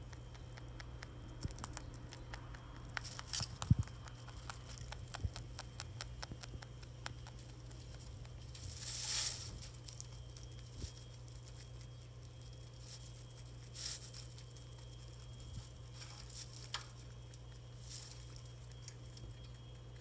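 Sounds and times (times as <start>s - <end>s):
rabbit clicks and taps: 0.0s - 8.4s
steady low hum: 0.0s - 20.0s
rustle: 7.8s - 19.3s.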